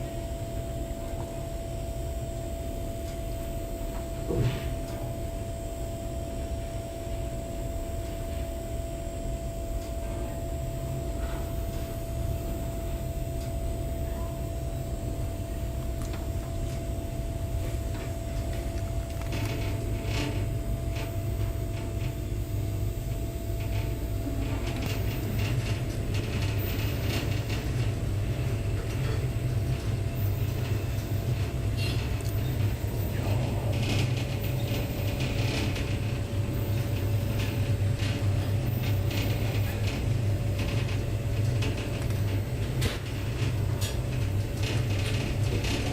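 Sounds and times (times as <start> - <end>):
faint hum: 0.0 - 45.9
train carriage low rumble: 0.0 - 45.9
carriage creaks and rattles: 23.6 - 45.9.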